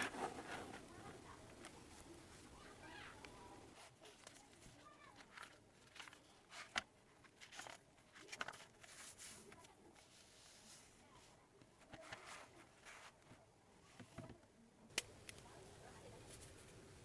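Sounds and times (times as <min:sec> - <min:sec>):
paper rustling: 0:00.0 - 0:13.4.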